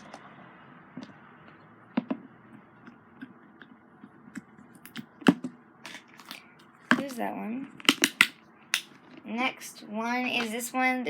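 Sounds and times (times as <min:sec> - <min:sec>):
slime squished with clicks and pops: 0:07.8 - 0:08.9.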